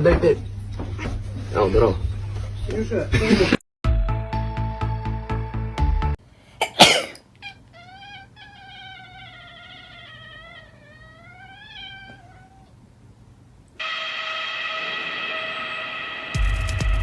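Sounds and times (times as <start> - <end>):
cat yowling: 7.4 - 12.8.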